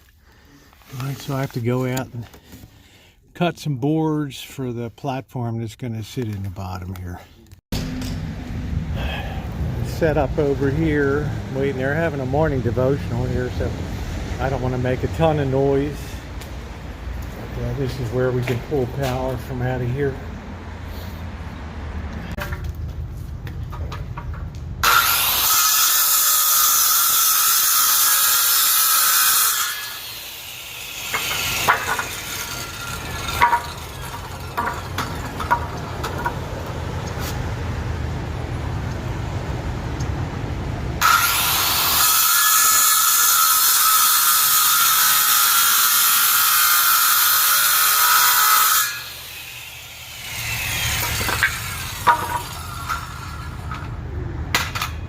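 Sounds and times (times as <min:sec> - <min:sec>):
power saw cutting boards: 0:24.8 - 0:36.6, 0:41.0 - 0:54.0.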